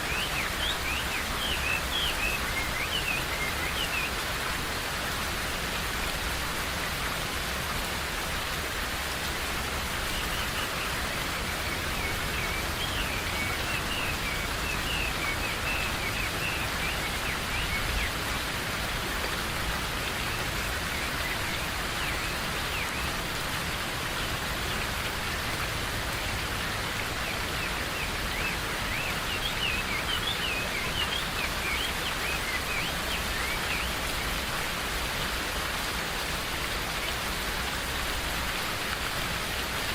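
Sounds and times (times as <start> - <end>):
steady rain in forest: 0.0 - 39.9
birds chirping: 25.4 - 34.4.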